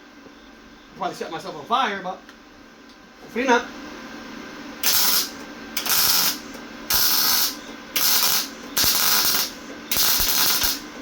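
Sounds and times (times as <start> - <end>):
welding arc crackling: 4.8 - 11.0.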